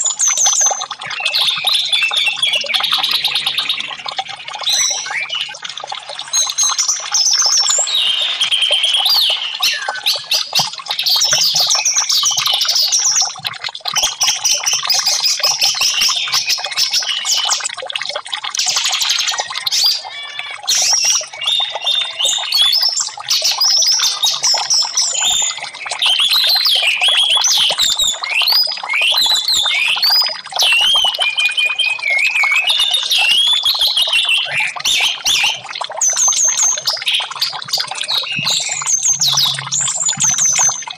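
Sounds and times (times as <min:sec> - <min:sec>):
bird singing whistled notes: 0:00.1 - 0:03.9, 0:04.6 - 0:05.6, 0:20.8 - 0:37.2, 0:38.1 - 0:40.9.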